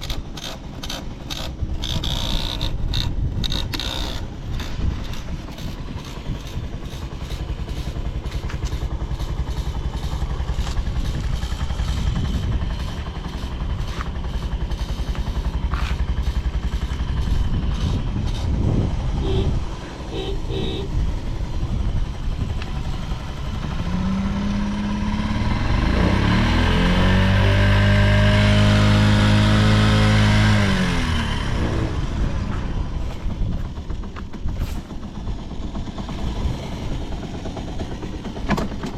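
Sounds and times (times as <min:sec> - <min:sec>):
scooter engine idling and revving: 0:00.0 - 0:38.9.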